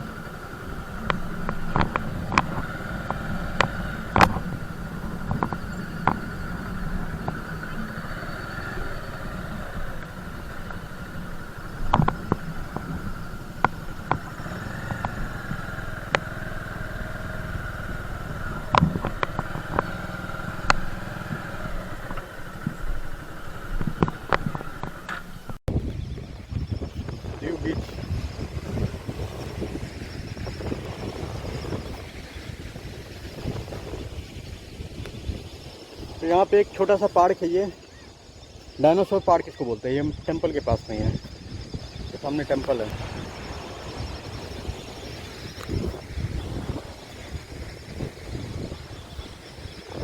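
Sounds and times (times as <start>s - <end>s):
motorcycle engine running: 0.0s - 50.0s
sharp clicks and knocks: 10.0s - 16.3s.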